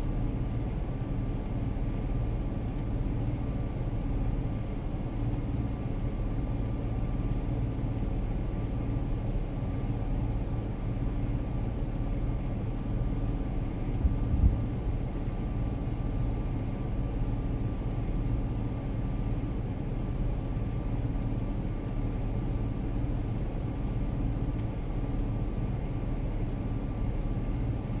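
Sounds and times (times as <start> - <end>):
road rumble: 0.0 - 28.0.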